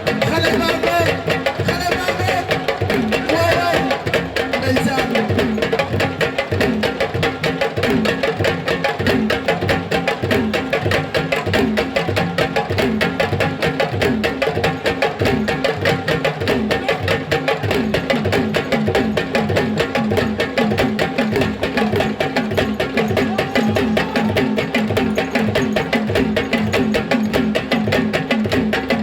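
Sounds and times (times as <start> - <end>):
drum-led music: 0.0 - 29.0.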